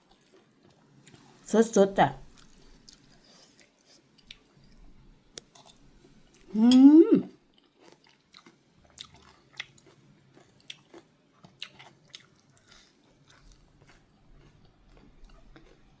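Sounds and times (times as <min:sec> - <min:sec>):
mouth clicks and chewing smacks: 0:02.3 - 0:03.2, 0:07.8 - 0:10.0, 0:10.6 - 0:15.8.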